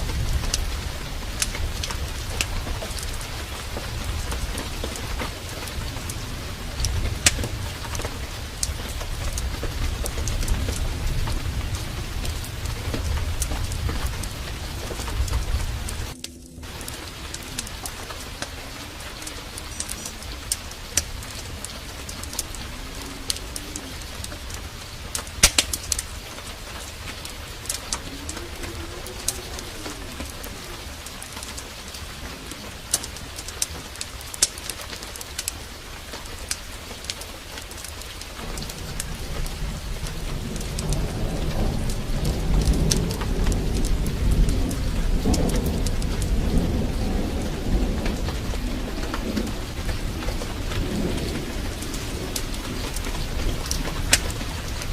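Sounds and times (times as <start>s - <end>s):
heavy rain falling: 0.0s - 54.9s
rolling thunder rumble: 0.0s - 54.9s
sharp crackles: 0.0s - 54.9s
bird cooing: 9.2s - 33.8s.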